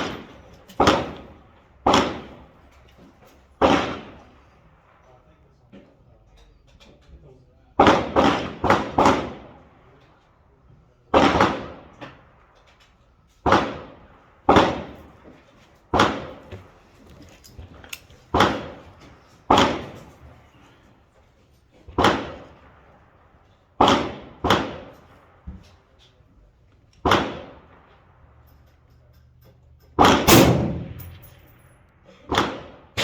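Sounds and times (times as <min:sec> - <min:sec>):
rifle shots echoing: 0:00.0 - 0:02.6, 0:03.6 - 0:05.0, 0:07.8 - 0:09.9, 0:11.1 - 0:12.6, 0:13.4 - 0:17.0, 0:17.6 - 0:20.8, 0:21.9 - 0:25.9, 0:27.0 - 0:28.5, 0:30.0 - 0:33.0.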